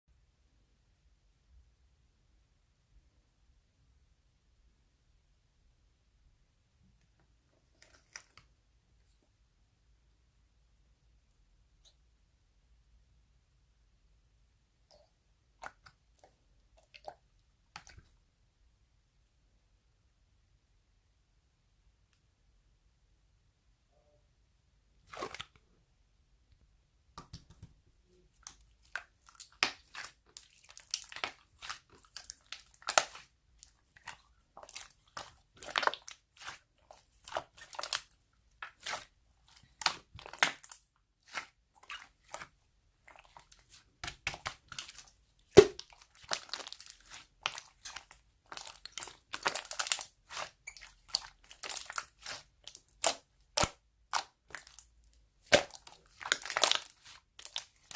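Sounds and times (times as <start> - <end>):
slime squished by hand: 27.2 - 57.9.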